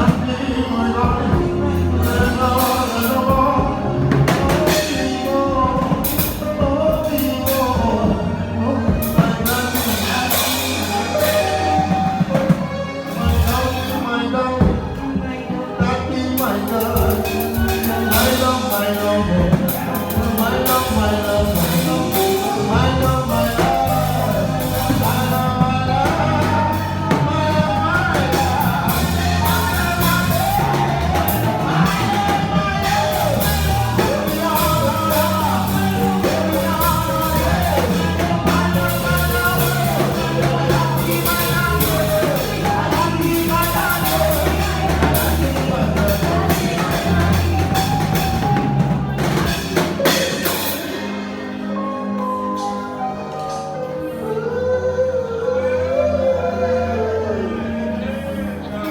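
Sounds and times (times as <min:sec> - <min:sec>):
drum kit beat: 0:00.0 - 0:51.4
bass: 0:00.0 - 0:58.9
person singing melody: 0:00.0 - 0:58.9.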